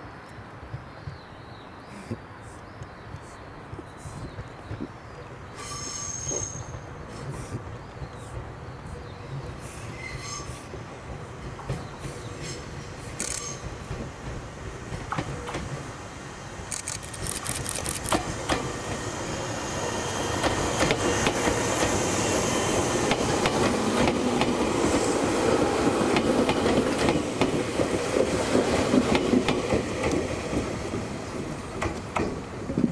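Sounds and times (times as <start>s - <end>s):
electric train rolling rumble: 5.3s - 32.9s
train wheels clicking: 5.7s - 16.0s, 16.6s - 19.2s, 20.0s - 32.9s.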